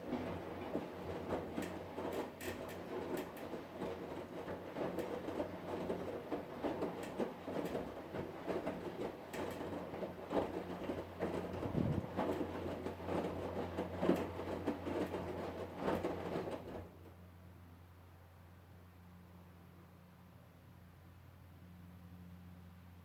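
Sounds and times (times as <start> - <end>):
washing machine motor hum: 0.0 - 18.0
drum clattering and clicking: 0.1 - 16.9.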